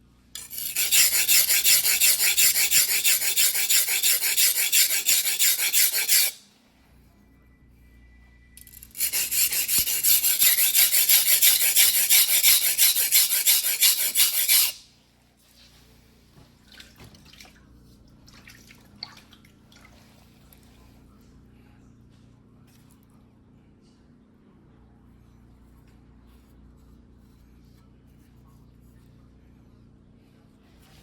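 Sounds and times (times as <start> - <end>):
knife scraping on whetstone: 0.4 - 6.4, 8.6 - 14.8.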